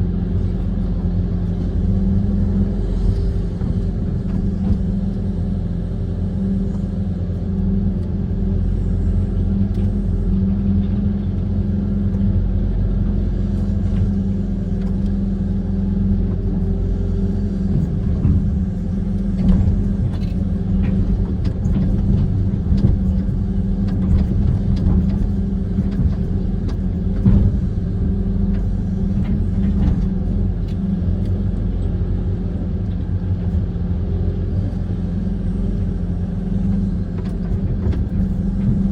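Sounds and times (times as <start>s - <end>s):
diesel engine rumbling: 0.0s - 38.9s
machine knocks and clanks: 17.6s - 30.8s, 36.7s - 38.9s.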